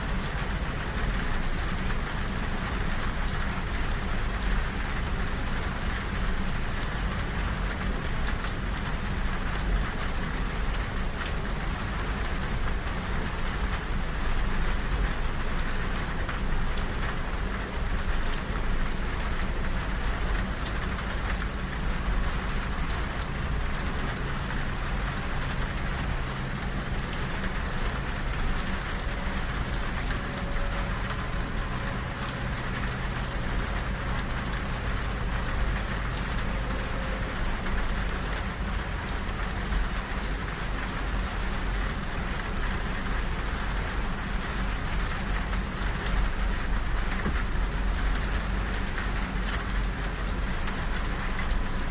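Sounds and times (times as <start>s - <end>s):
rain on train window: 0.0s - 51.9s
moving train rumble: 4.3s - 51.9s.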